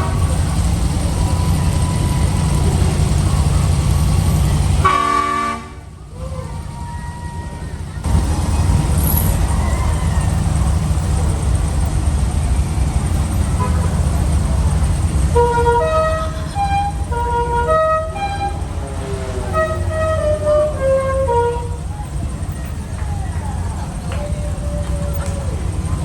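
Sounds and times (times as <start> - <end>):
car engine rumbling: 0.0 - 26.0
musical car horn tune: 4.7 - 6.0, 13.5 - 14.1, 15.2 - 22.2.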